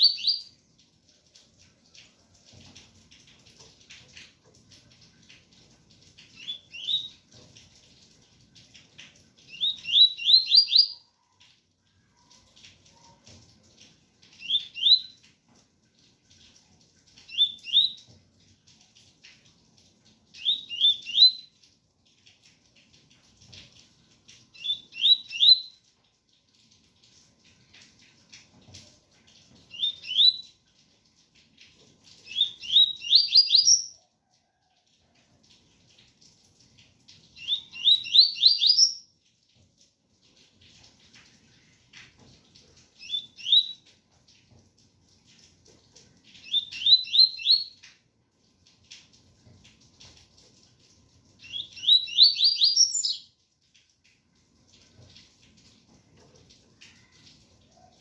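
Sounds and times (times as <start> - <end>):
bird singing whistled notes: 0.0 - 0.5, 6.4 - 7.1, 9.5 - 11.0, 14.4 - 15.2, 20.4 - 21.5, 24.6 - 25.8, 29.7 - 30.4, 32.3 - 34.0, 37.4 - 39.0, 43.0 - 43.8, 46.4 - 47.8, 51.4 - 53.3
faint rain: 0.0 - 58.0.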